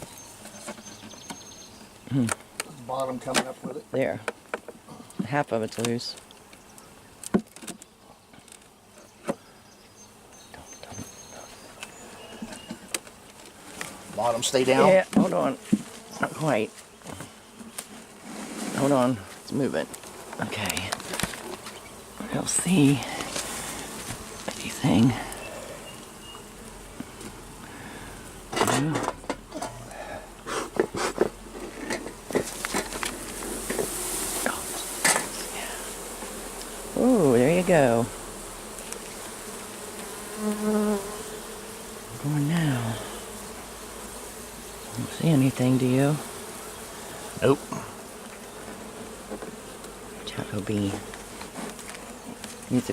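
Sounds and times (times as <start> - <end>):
bees buzzing: 0.0 - 52.9
sharp cracks and knocks of hive box: 7.2 - 9.4, 11.8 - 14.0, 17.0 - 18.2, 19.9 - 21.9, 38.7 - 41.1, 50.9 - 52.7
sharp knocks on hive box: 30.7 - 35.4.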